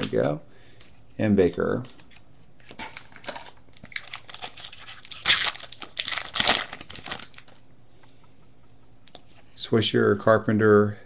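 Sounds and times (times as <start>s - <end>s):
plastic wrapper crinkling and tearing: 2.7s - 7.6s.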